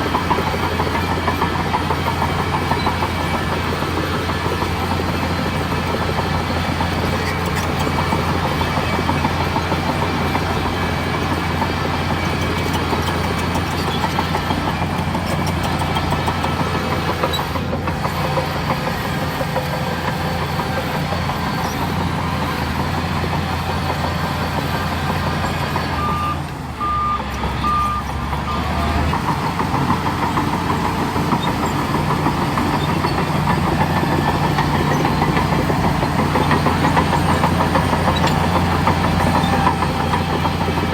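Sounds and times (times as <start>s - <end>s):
bulldozer diesel engine running: 0.0s - 40.9s
reversing alarm beeps: 25.8s - 29.0s.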